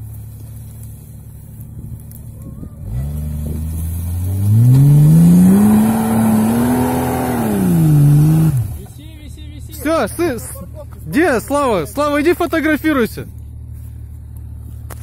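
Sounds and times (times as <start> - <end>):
suv engine revving: 2.8 - 9.0.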